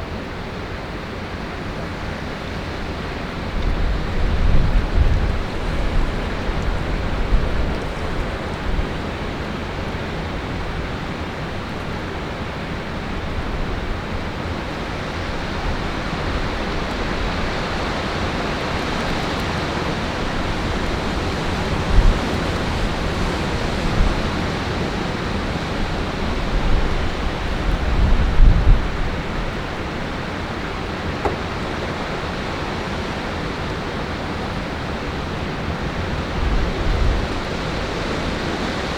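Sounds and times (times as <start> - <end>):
wind buffeting microphone: 0.0 - 38.9
strong wind rushing: 3.4 - 10.8, 15.0 - 32.4.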